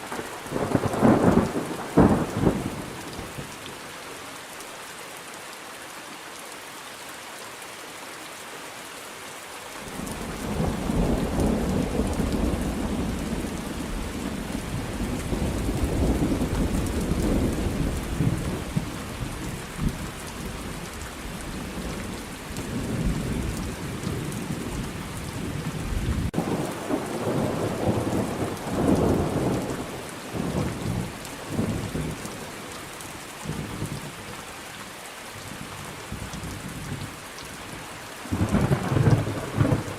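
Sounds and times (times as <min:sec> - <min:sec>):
steady rain: 0:00.0 - 0:39.9
rolling thunder: 0:10.2 - 0:20.1, 0:38.3 - 0:39.9.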